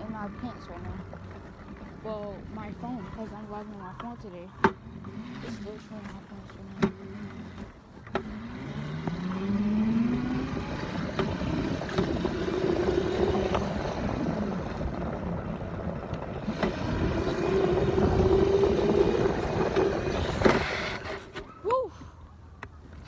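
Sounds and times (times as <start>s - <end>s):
dirt bike engine revving: 4.8s - 21.5s.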